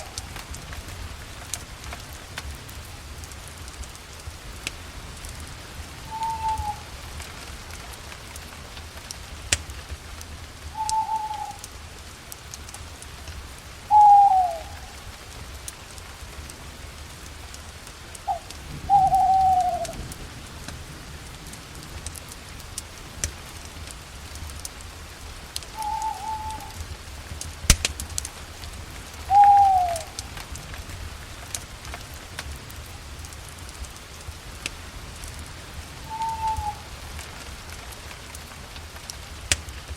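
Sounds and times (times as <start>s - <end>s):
campfire crackling: 0.0s - 39.9s
fire popping: 0.0s - 39.9s
bird whistling: 6.1s - 6.9s, 10.8s - 11.6s, 13.9s - 14.8s, 18.3s - 20.0s, 25.8s - 26.8s, 29.3s - 30.1s, 36.1s - 36.9s.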